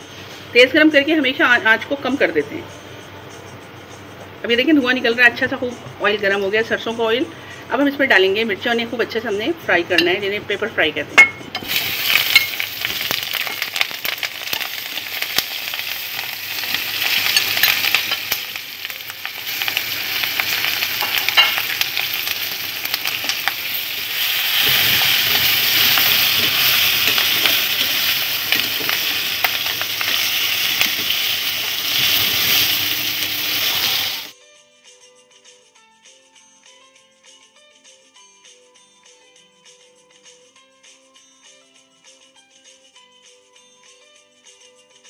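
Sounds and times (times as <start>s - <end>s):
faint music: 0.0s - 40.6s
chillies sizzling in oil: 11.2s - 34.4s.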